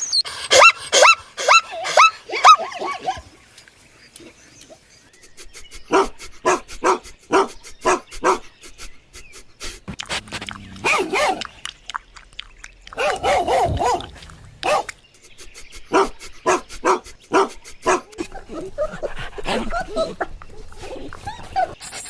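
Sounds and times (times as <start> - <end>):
animal calling: 4.2 - 21.8.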